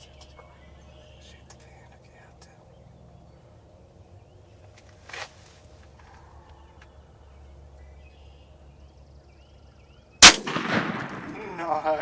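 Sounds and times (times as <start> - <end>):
bird trill: 6.0 - 10.3.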